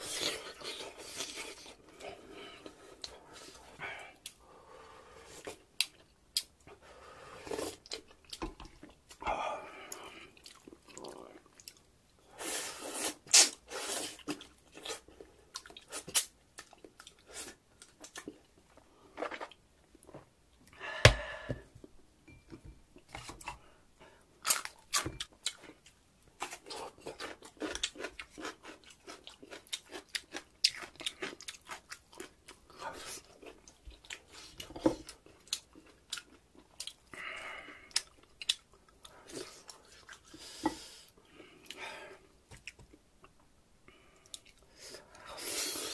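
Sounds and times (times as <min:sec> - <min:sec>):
chewing and mouth smacking: 0:24.4 - 0:37.0.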